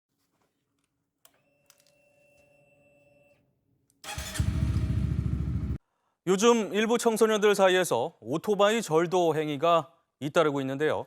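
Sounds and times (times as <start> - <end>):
motorcycle engine running: 4.1 - 5.8.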